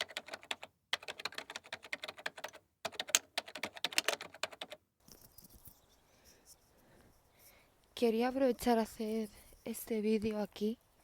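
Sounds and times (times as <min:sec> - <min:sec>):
rapid keyboard typing: 0:00.0 - 0:04.8
faint outdoor background: 0:00.0 - 0:11.0.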